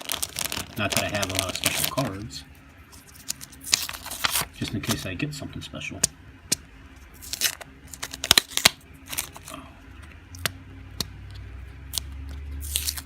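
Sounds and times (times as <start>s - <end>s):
packaging crinkling and tearing: 0.0s - 2.3s, 2.9s - 5.1s, 7.1s - 9.6s, 11.9s - 13.0s.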